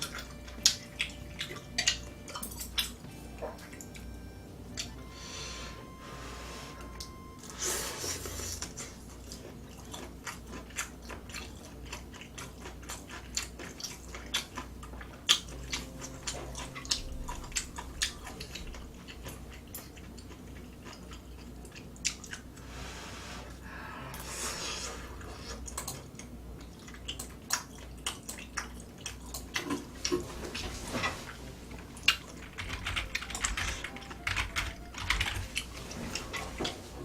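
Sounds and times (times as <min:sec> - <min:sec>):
wet chewing and mouth smacks: 0:00.0 - 0:04.1, 0:08.6 - 0:22.6, 0:25.4 - 0:30.7.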